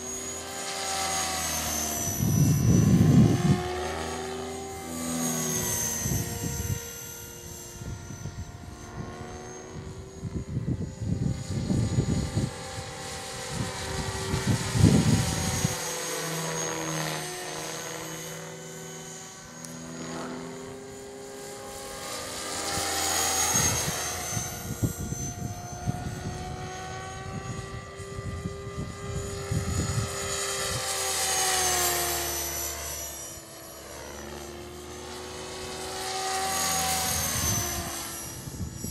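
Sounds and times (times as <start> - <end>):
rc helicopter rotor buzz: 0.0 - 38.9
wind rumbling on microphone: 2.0 - 3.8, 5.6 - 15.8, 22.6 - 31.0, 36.9 - 38.9.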